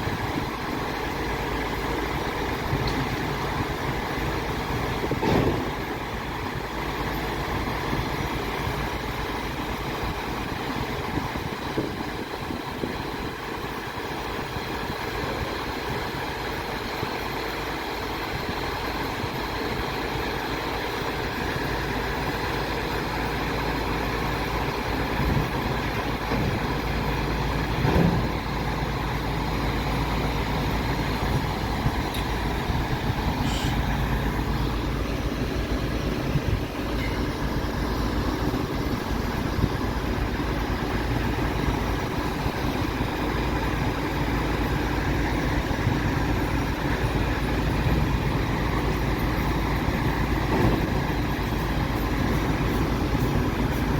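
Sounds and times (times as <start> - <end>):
diesel engine running: 0.0 - 53.9
sharp clunk: 5.2 - 5.8, 27.8 - 28.3.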